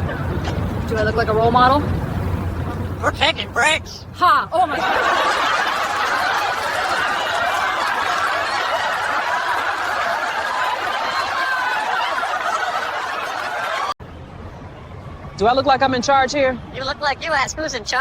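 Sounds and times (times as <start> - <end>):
crowd laughing: 0.0 - 0.8, 4.6 - 14.0.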